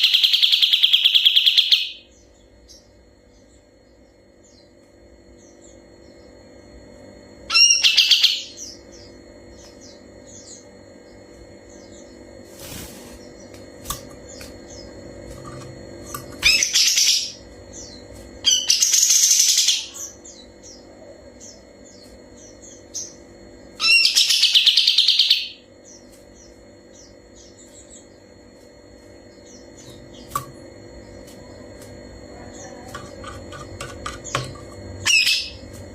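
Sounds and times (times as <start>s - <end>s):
songbird trilling song: 0.0s - 4.8s, 16.2s - 23.2s.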